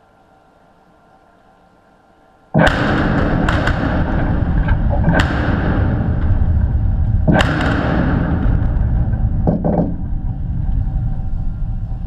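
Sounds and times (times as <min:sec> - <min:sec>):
heavy continuous rumble: 0:02.5 - 0:12.0
blasting charges cracking: 0:02.6 - 0:12.0.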